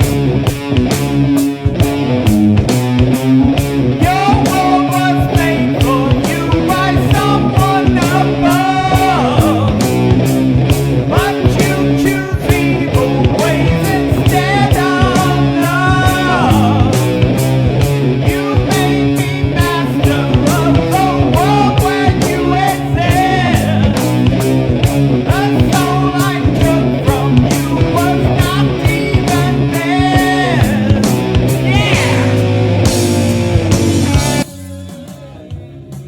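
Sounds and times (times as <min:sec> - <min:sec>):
bass guitar: 0:00.0 - 0:36.0
drums: 0:00.0 - 0:36.0
electric guitar: 0:00.0 - 0:36.0
person singing: 0:04.0 - 0:10.2, 0:11.0 - 0:17.4, 0:18.2 - 0:24.4, 0:25.2 - 0:32.7.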